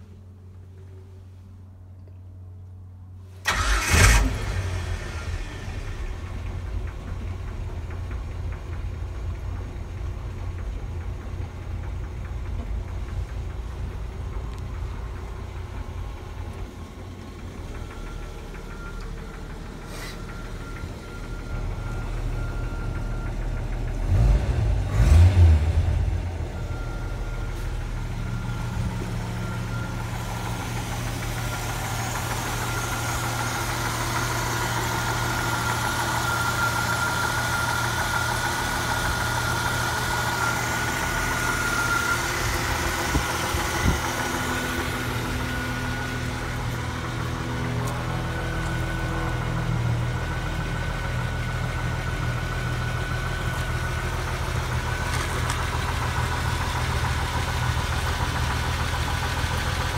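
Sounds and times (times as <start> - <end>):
car engine idling: 0.0 - 59.9
car engine starting: 3.3 - 59.9
car engine revving: 24.0 - 26.5.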